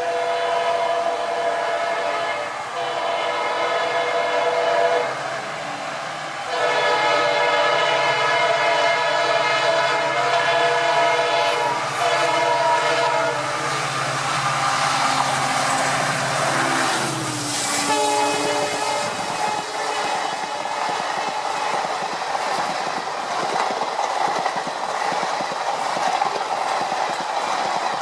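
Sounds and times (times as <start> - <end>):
train horn: 0.0 - 5.2, 6.4 - 13.9, 14.8 - 20.9
passing train rushing: 0.0 - 28.0
train running: 0.0 - 28.0.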